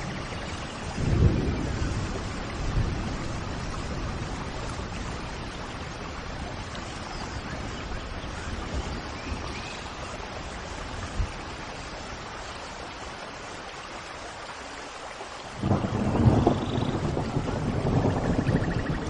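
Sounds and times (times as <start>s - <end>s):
thunder rumbling: 0.0s - 6.8s, 15.6s - 19.0s
steady rain: 0.0s - 19.0s.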